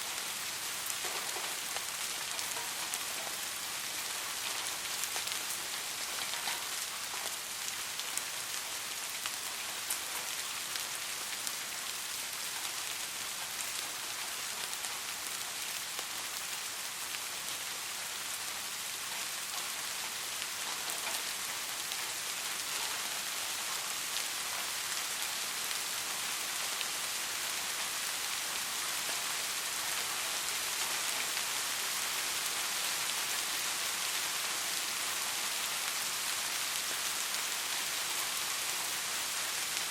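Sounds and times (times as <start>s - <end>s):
soft rain falling: 0.0s - 39.9s.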